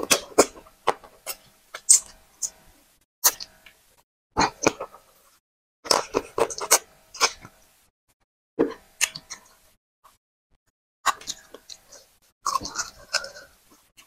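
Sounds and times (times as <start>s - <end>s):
lip smacking and chewing: 11.1s - 13.8s.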